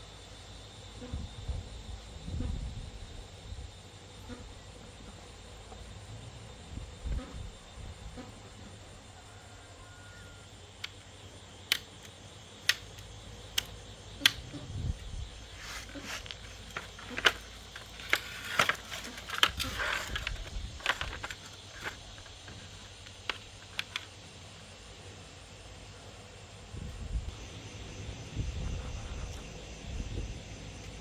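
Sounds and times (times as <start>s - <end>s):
low steady background hum: 0.0s - 31.0s
scraping: 15.5s - 24.0s.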